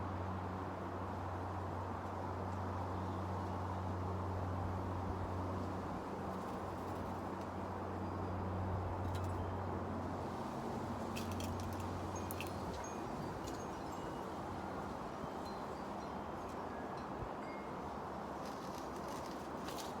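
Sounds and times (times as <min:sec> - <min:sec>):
wind chimes ringing: 0:11.2 - 0:18.0.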